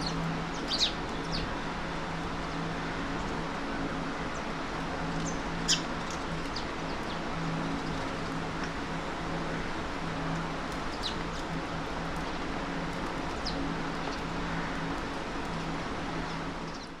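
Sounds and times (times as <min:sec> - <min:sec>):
city background hum: 0:00.0 - 0:17.0.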